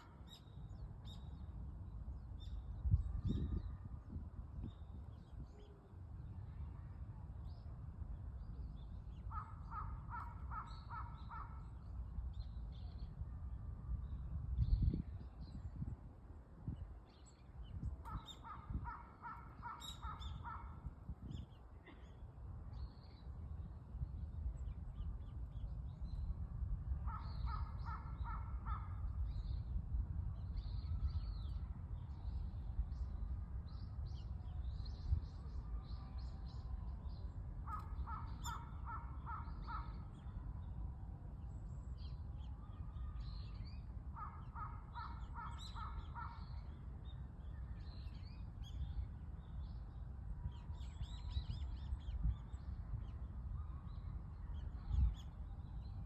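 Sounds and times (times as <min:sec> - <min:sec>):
low wind rumble: 0:00.0 - 0:56.0
small birds chirping: 0:17.2 - 0:22.2.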